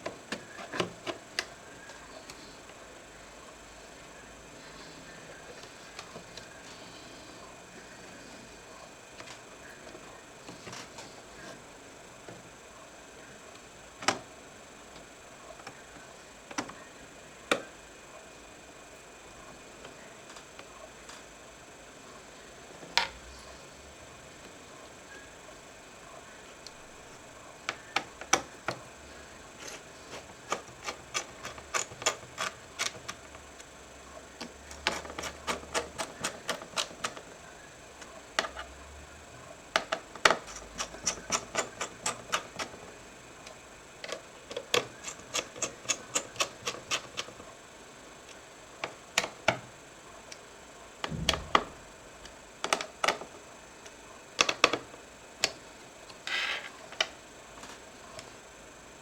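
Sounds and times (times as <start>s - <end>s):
sharp clicks from laptop parts: 29.6s - 33.7s, 34.4s - 37.3s, 39.7s - 42.8s, 54.4s - 56.3s.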